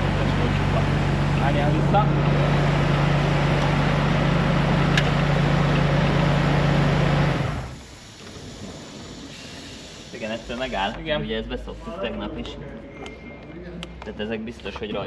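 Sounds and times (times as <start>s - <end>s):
car engine idling: 0.0s - 10.5s.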